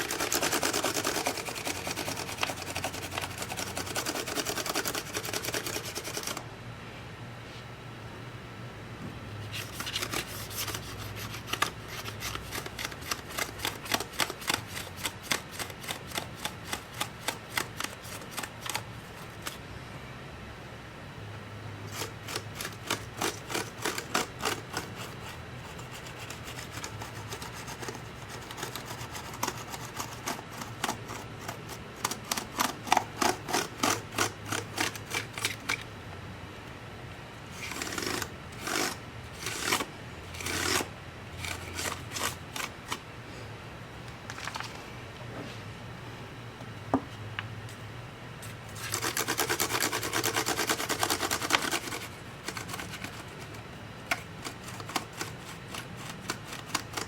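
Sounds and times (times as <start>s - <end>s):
brush scrubbing: 0.0s - 6.4s, 9.4s - 19.6s, 21.9s - 35.8s, 48.7s - 57.0s
low steady hum: 0.0s - 57.0s.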